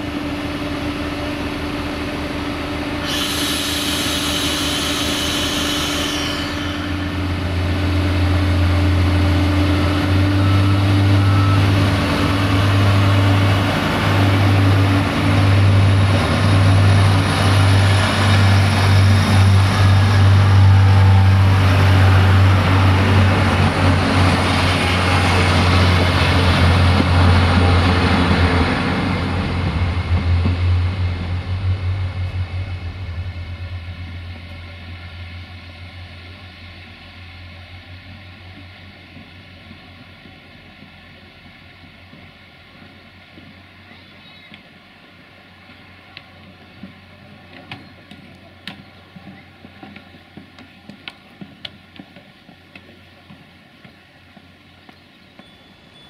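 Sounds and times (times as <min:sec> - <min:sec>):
diesel train engine drone: 0:00.0 - 0:56.0
wheels rumbling on rails: 0:00.0 - 0:56.0
hiss: 0:03.0 - 0:07.6.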